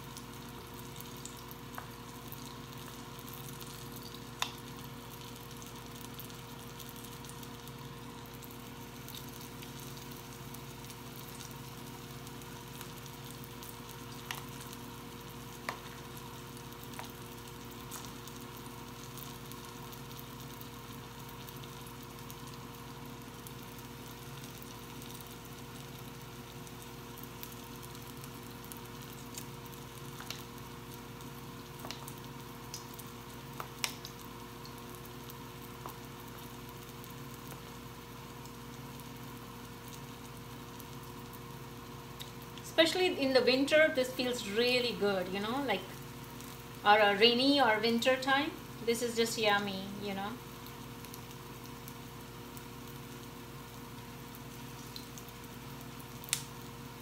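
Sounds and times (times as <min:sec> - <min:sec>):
batter sizzling in oil: 0:00.0 - 0:57.0.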